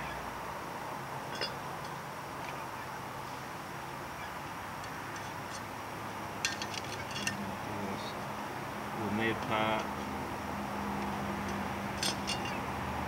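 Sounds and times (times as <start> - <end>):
steady background hum: 0.0 - 13.0
light clicks of metal parts handled: 1.3 - 2.6, 4.8 - 5.7, 6.4 - 7.5, 11.0 - 12.6.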